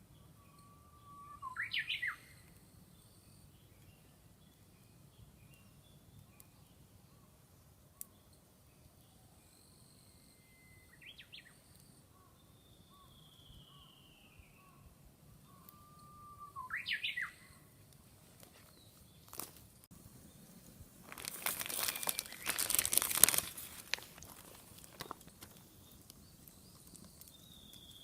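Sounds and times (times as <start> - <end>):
birds chirping: 10.9 - 17.8, 20.1 - 28.0
falling whistled bird note: 15.6 - 17.6
loud crackling hissing burst: 20.8 - 28.0.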